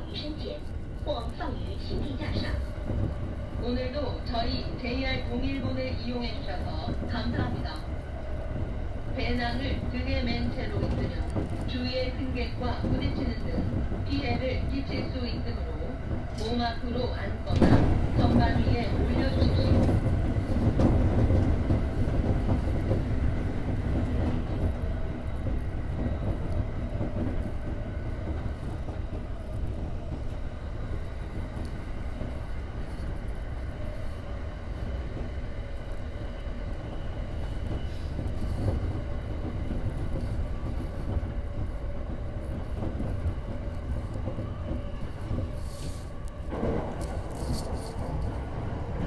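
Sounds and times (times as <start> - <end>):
train wheels rumbling on rails: 0.0 - 49.0.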